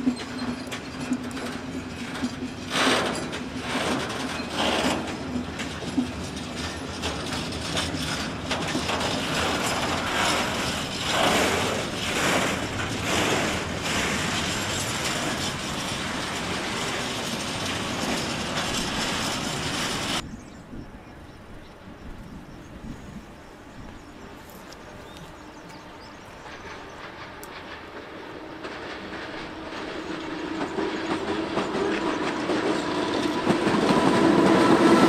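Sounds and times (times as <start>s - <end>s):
loose metal rattling and clanking: 0.0s - 20.3s
train wheels running on rails: 0.0s - 35.0s.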